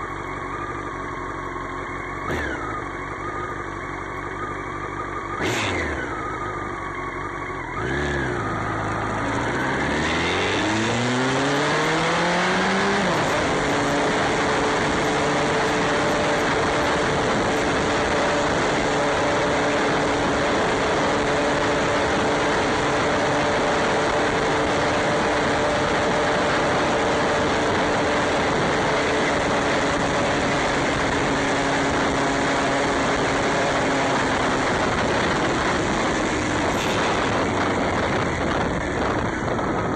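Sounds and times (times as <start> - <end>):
motorcycle engine revving: 0.0 - 39.9
loud rushing noise: 34.9 - 39.9.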